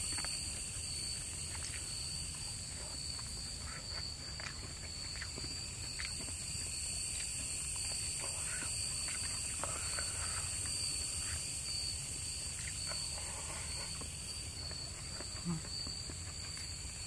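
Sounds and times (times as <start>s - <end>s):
night insects chirring: 0.0s - 17.0s
person chewing food: 3.9s - 6.4s.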